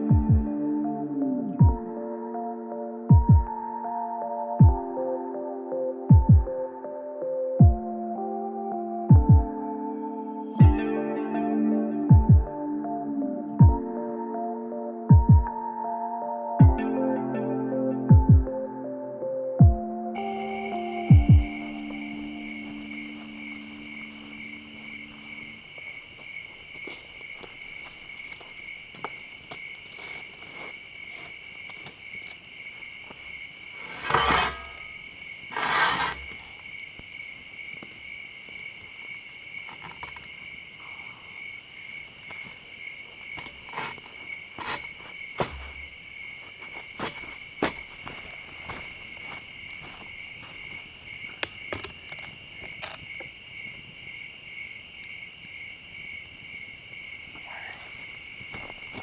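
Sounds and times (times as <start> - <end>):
crickets chirping: 0.0 - 16.4, 20.1 - 59.0
loud rustling: 33.7 - 36.6.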